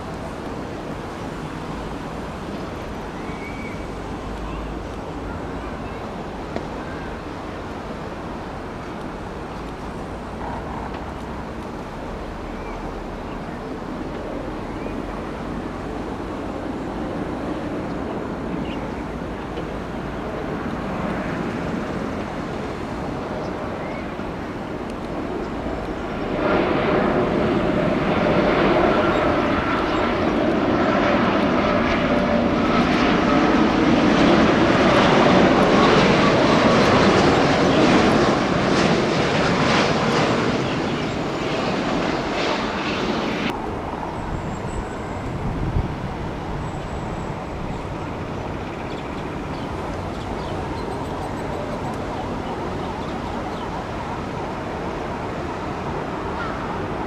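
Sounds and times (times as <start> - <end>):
jet engines rushing: 0.0 - 57.0.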